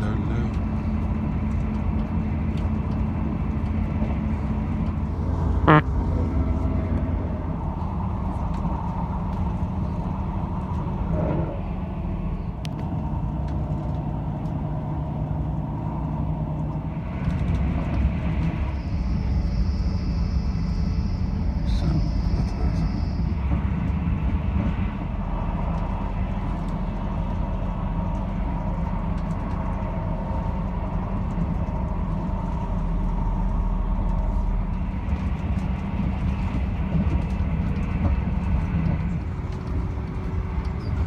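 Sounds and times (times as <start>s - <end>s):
train wheels rumbling: 0.0s - 41.0s
sharp train squeal: 18.6s - 24.3s, 40.8s - 41.0s.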